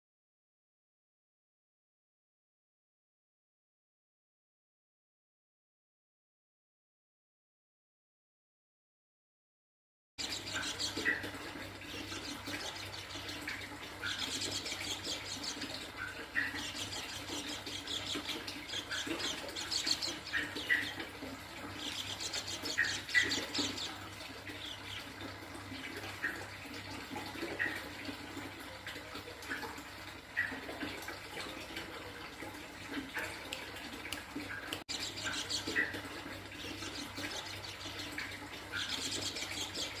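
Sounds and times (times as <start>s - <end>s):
bird twittering trills: 10.2s - 28.3s, 34.4s - 40.0s.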